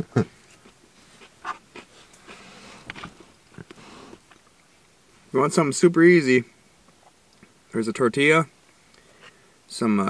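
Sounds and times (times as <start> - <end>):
man chewing: 0.4 - 4.7
man breathing: 1.9 - 2.9, 3.7 - 4.3, 8.8 - 9.7.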